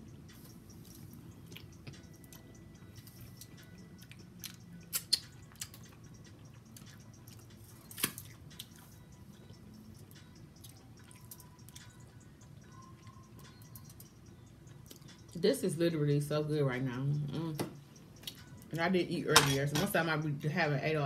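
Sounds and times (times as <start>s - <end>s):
person chewing: 0.7s - 9.1s, 10.0s - 13.1s.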